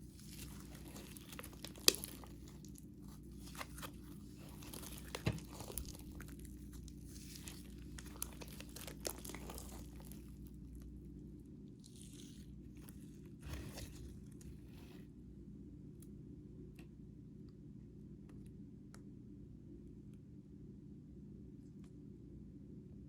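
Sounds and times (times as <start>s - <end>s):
slime squishing and crackling: 0.0s - 15.0s
steady low hum: 0.0s - 23.0s.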